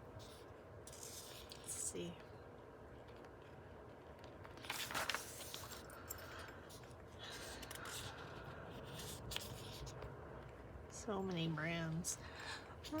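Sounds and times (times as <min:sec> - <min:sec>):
book pages rustling: 0:00.1 - 0:01.7, 0:03.0 - 0:06.0, 0:06.7 - 0:10.2.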